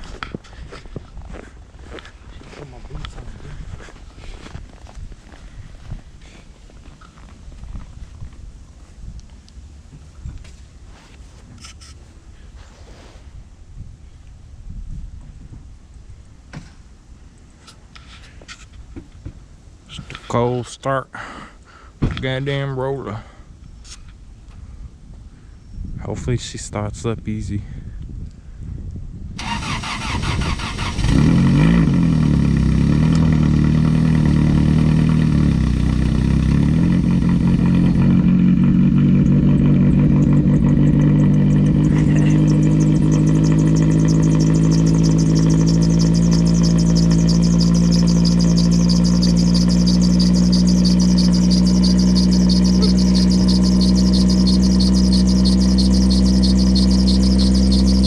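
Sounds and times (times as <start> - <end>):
car engine cold start: 29.4 - 58.0.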